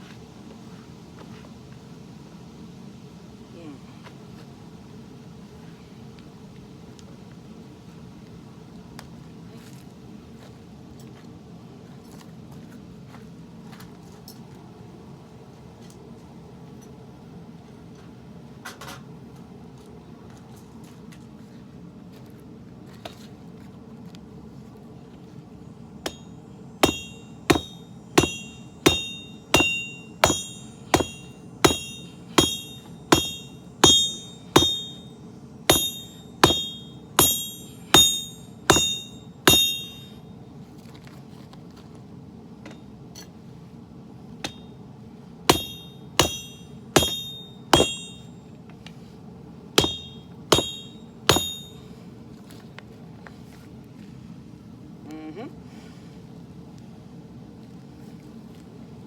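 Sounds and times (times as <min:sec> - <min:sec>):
hammer striking steel on anvil: 0:26.1 - 0:40.2, 0:44.4 - 0:44.7, 0:45.5 - 0:48.4, 0:49.8 - 0:51.9.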